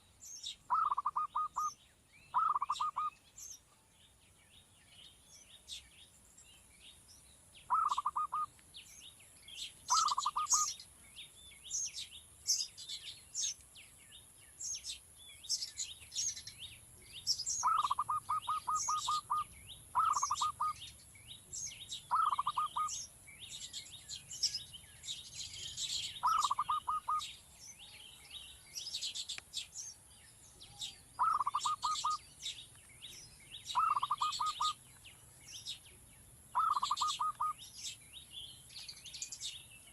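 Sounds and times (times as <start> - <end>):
low bird trill: 0.0 - 3.6, 7.6 - 9.0, 9.6 - 10.9, 17.2 - 30.1, 30.7 - 35.8, 36.5 - 38.0
small birds chirping: 0.0 - 39.9.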